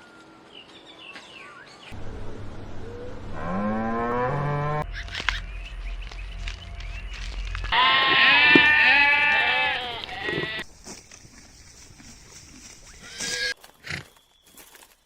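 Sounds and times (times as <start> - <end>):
faint barnyard sounds: 4.8 - 15.0
goat bleating: 7.7 - 10.6.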